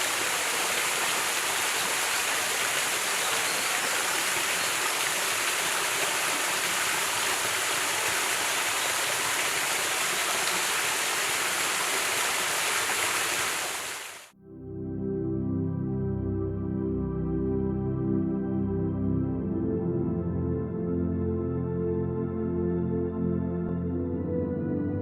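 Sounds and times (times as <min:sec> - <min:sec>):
stream water rushing: 0:00.0 - 0:14.3.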